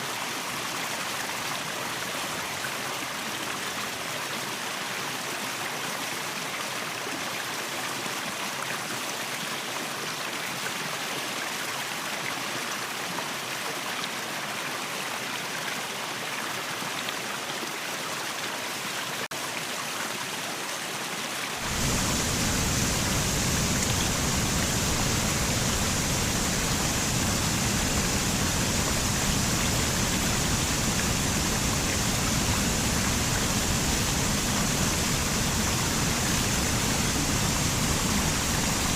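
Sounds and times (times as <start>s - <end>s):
waterfall rushing: 21.6s - 38.9s.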